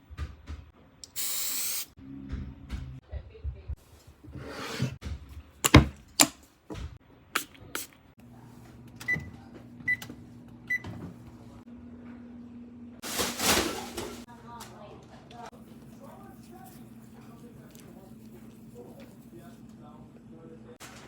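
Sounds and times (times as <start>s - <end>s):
handling knocks and clicks: 5.0s - 7.0s.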